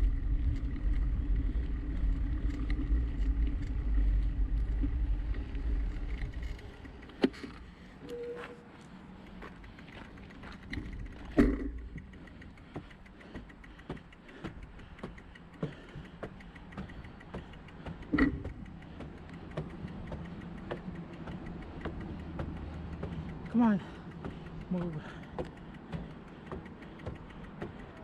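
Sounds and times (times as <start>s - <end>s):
bicycle rolling and rattling: 0.0s - 28.0s
bicycle clunks: 9.4s - 28.0s.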